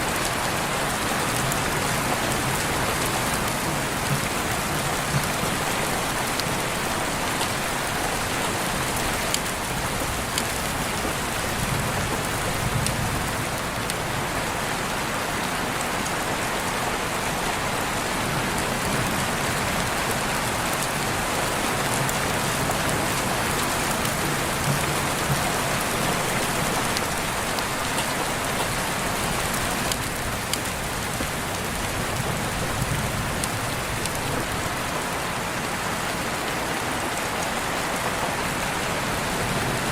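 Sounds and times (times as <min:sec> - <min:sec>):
heavy rainfall: 0:00.0 - 0:39.9
raindrop ticks: 0:03.4 - 0:06.5, 0:08.9 - 0:14.0, 0:21.8 - 0:32.0, 0:32.8 - 0:34.6.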